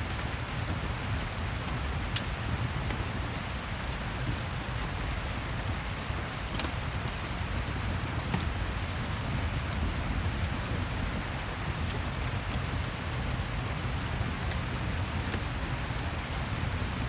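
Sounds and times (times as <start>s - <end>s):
rain falling: 0.1s - 17.0s
wood fire crackling: 5.9s - 17.0s.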